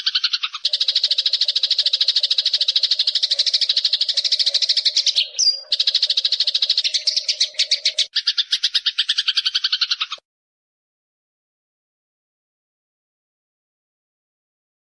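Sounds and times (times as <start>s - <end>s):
sparrow chirping: 0.0s - 10.2s.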